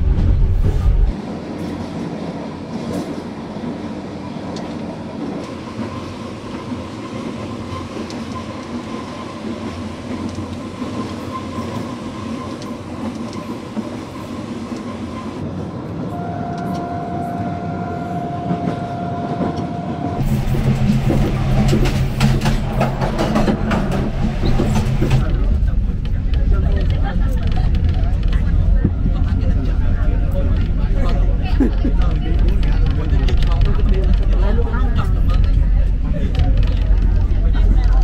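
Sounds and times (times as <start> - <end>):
train wheels clattering: 20.2 - 28.6.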